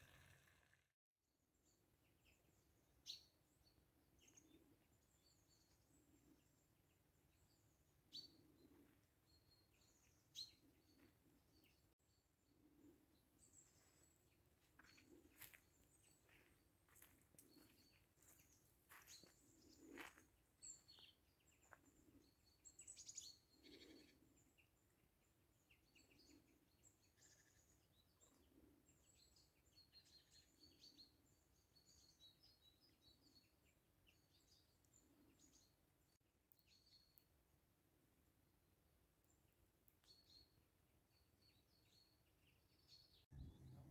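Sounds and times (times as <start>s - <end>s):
small bird chirps: 1.6s - 6.6s, 7.4s - 11.9s, 14.8s - 24.8s, 25.6s - 37.4s, 39.2s - 43.9s.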